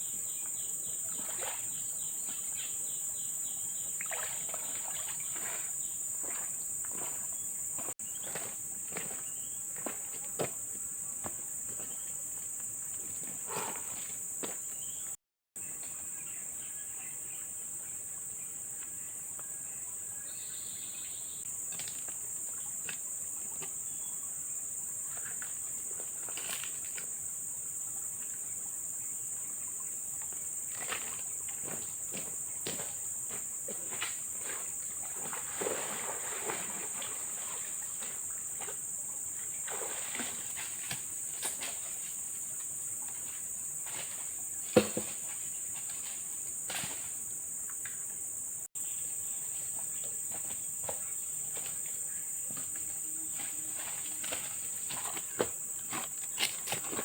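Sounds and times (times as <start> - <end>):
insects chorus shrill drone: 16.0 - 27.5.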